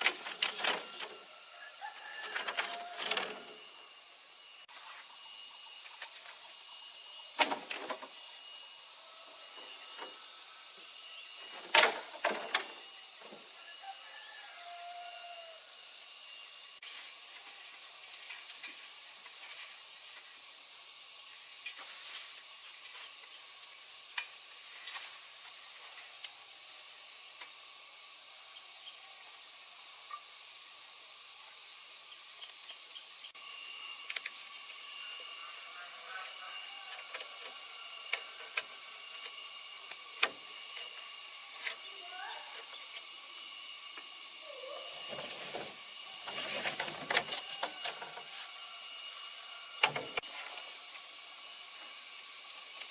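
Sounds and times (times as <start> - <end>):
steady high hiss: 0.0 - 52.9.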